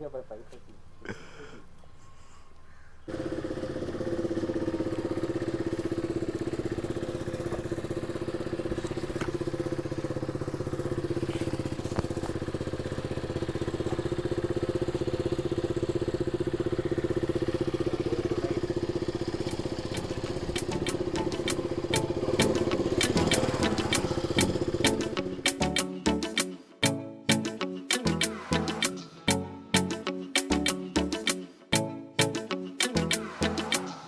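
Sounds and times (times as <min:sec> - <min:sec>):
motorcycle engine running: 0:03.1 - 0:25.6.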